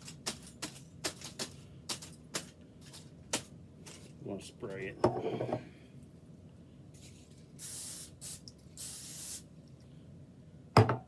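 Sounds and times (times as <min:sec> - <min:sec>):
aerosol spray hissing: 0:07.6 - 0:09.5.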